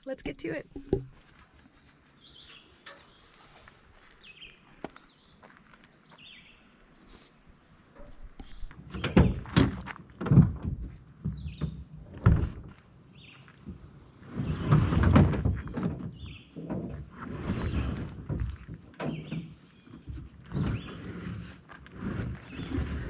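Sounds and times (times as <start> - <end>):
kayak gear thunks and knocks: 0.7 - 1.2, 8.0 - 12.8, 14.6 - 20.9
bird chirping: 1.2 - 3.4
kayak scraping rush: 16.2 - 23.0.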